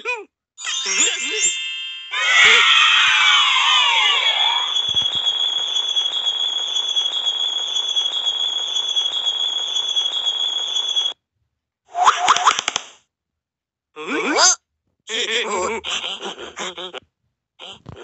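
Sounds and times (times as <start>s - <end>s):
falling whistling glides: 2.1s - 11.1s.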